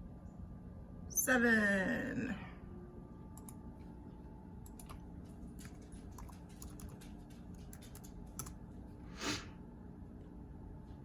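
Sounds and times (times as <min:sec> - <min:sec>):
keyboard keys clicking: 0:05.6 - 0:08.6.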